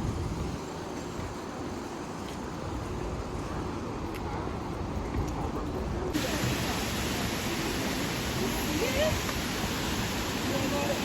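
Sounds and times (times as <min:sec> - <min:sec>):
waterfall rushing: 0:06.2 - 0:11.0.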